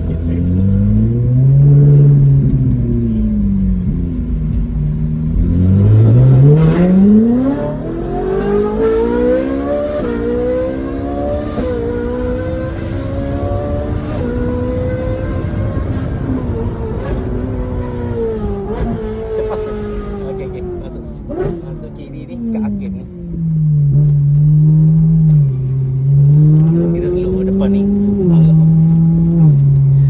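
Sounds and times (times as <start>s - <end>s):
car engine accelerating hard: 0.0s - 30.0s
exhaust cracks: 0.0s - 30.0s.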